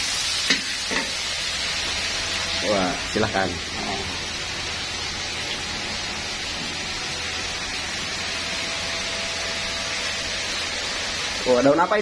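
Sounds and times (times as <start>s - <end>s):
oil sizzling in a wok: 0.0s - 12.0s.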